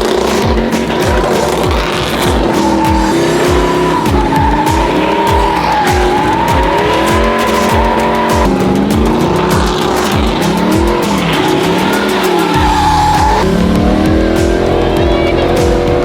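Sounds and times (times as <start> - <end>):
music with deep bass beat: 0.0 - 16.0
tires squealing: 0.0 - 16.0.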